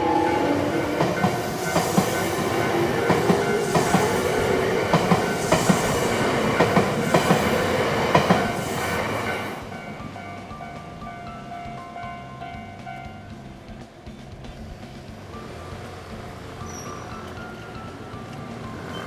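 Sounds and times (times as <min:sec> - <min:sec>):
level crossing warning bell: 0:00.0 - 0:13.5, 0:15.4 - 0:19.0
train wheels clacking over joints: 0:00.0 - 0:19.0.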